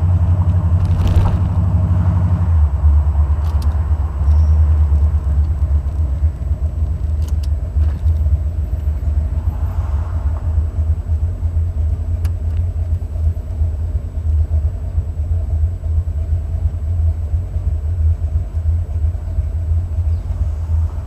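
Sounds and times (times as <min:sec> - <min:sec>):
engine exhaust rumble: 0:00.0 - 0:21.0.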